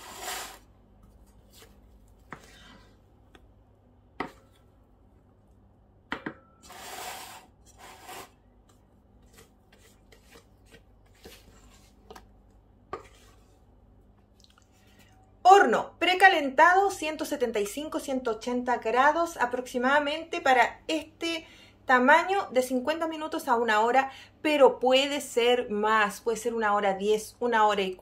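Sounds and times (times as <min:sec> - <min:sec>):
spatula scraping metal bowl: 0:00.0 - 0:00.6, 0:06.6 - 0:08.4.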